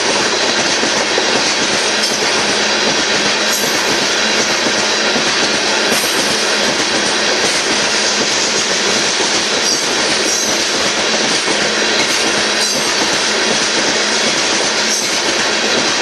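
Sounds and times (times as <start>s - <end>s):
freight train wheels on rails: 0.0s - 16.0s
wheels clacking over rail joints: 0.0s - 16.0s.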